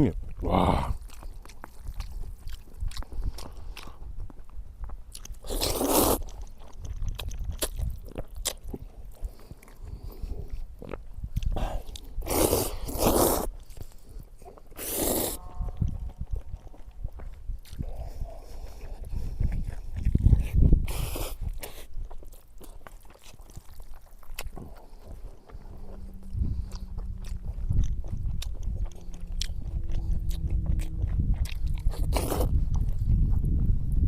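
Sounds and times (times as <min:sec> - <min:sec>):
person chewing food: 0:00.2 - 0:34.0
steady low rumble: 0:23.4 - 0:34.0.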